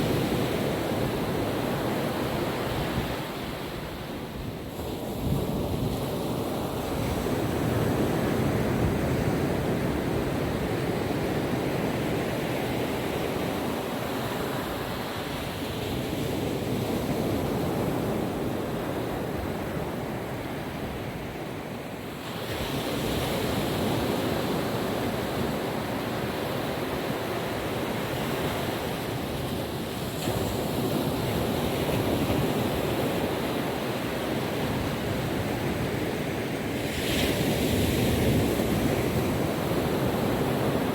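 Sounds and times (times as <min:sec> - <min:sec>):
wind on microphone: 0:00.0 - 0:21.4
ocean surf washing onto beach: 0:00.0 - 0:40.9.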